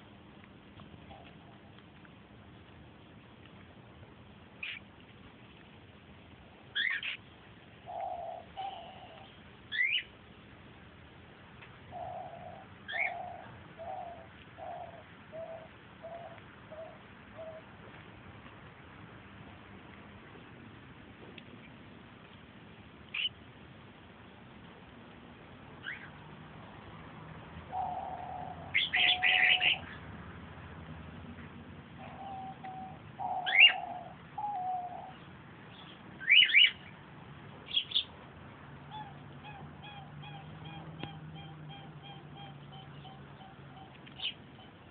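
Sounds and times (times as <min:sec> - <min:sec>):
bird hooting: 0:07.9 - 0:10.1, 0:11.9 - 0:17.7, 0:27.7 - 0:29.9, 0:32.0 - 0:35.2, 0:38.9 - 0:44.9
rising bird chirp: 0:27.7 - 0:30.0.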